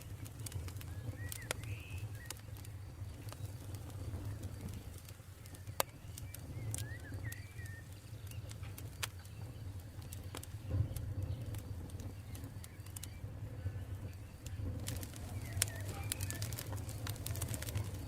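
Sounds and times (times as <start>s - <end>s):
campfire crackling: 0.0s - 18.0s
bird twittering: 0.9s - 2.5s, 5.4s - 8.5s.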